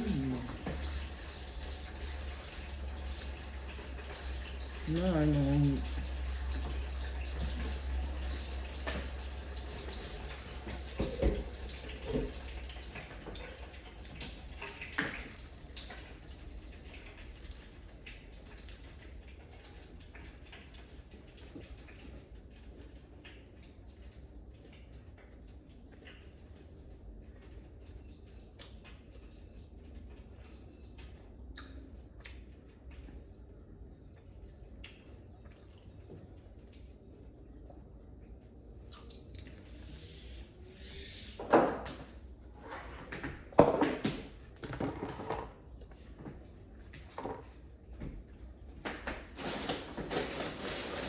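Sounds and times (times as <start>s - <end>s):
water running from a tap: 0.0s - 23.8s
low steady hum: 0.0s - 41.4s.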